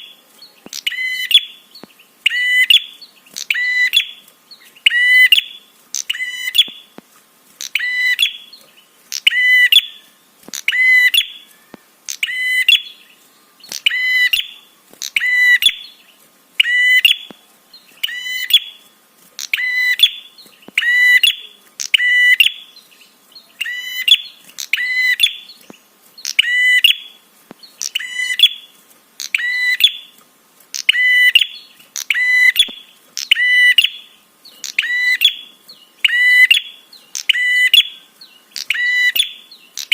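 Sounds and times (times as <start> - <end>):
shrill buzzy bird call: 0.0 - 7.0, 7.6 - 16.0, 16.6 - 17.4, 18.0 - 22.9, 23.5 - 25.6, 26.2 - 39.9.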